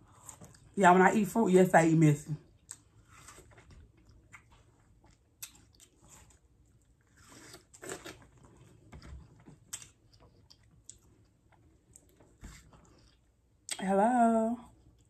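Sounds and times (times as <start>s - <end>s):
chewing watermelon: 2.5s - 13.8s.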